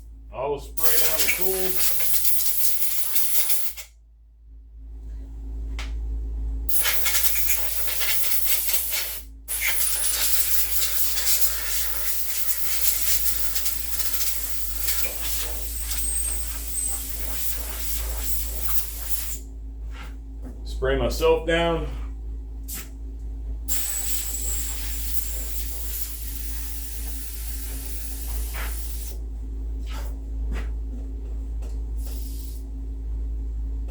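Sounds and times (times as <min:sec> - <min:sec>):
low steady hum: 0:00.0 - 0:33.9
compressed air hissing: 0:00.8 - 0:03.9, 0:06.7 - 0:19.4, 0:23.7 - 0:29.2, 0:32.0 - 0:32.6.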